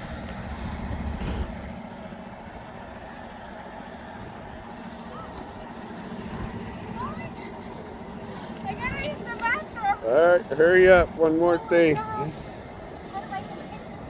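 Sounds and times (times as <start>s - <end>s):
diesel engine idling: 0.0s - 14.0s
short air hiss: 0.4s - 1.6s.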